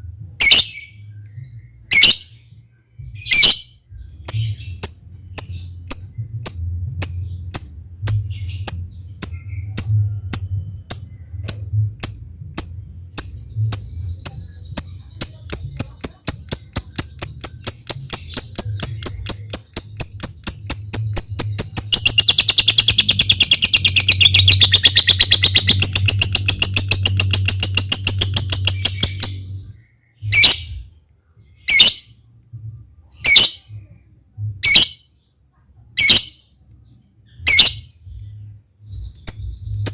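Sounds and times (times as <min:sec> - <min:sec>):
low steady hum: 0:00.0 - 0:39.9
lovebird ticking chirps: 0:04.2 - 0:29.5, 0:39.0 - 0:39.9
lovebird rattling trill: 0:04.3 - 0:29.4
lovebird sharp calls: 0:11.0 - 0:29.4.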